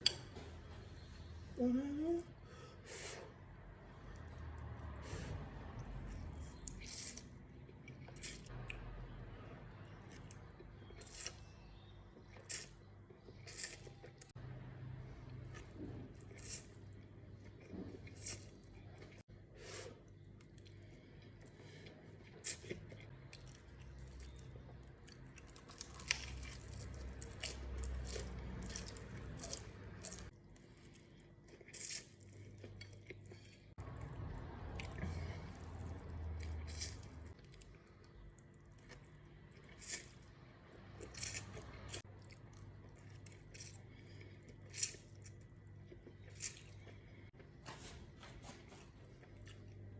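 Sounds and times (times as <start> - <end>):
crunching fried chicken: 22.4 - 33.3.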